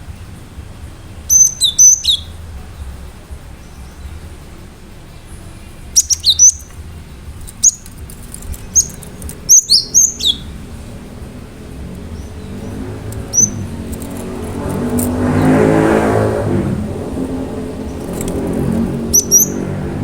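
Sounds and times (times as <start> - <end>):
bird singing high whistled notes: 1.2 - 2.5, 5.9 - 6.8, 7.5 - 20.0.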